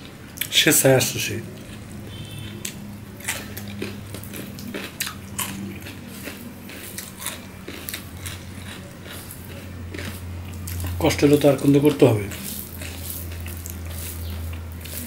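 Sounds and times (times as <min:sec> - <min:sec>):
chewing and wet mouth sounds: 0:00.0 - 0:15.0
steady low hum: 0:00.0 - 0:15.0
rice squishing as mixed by hand: 0:09.1 - 0:15.0.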